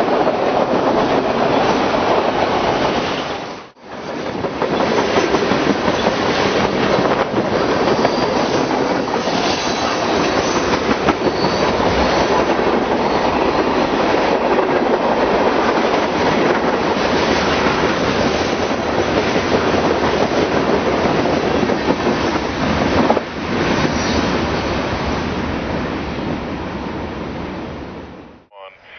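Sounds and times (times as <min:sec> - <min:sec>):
train wheels clattering over rails: 0:00.0 - 0:25.2
high wheel squeal: 0:07.5 - 0:13.5.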